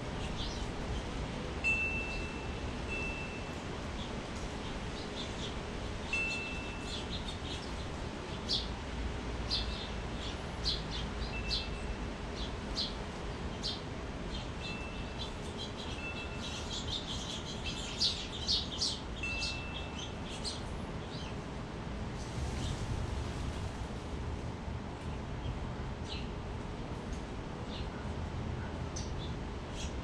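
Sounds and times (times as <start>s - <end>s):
small birds chirping: 0.0s - 1.2s, 2.0s - 8.8s, 9.5s - 21.5s, 27.6s - 30.0s
low background noise: 0.0s - 30.0s
wind chimes ringing: 1.6s - 3.6s, 6.1s - 7.0s, 19.2s - 20.0s.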